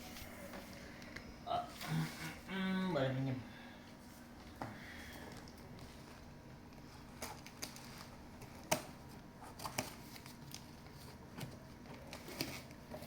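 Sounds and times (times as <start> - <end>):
packaging clicks and rustles: 5.3 - 13.0.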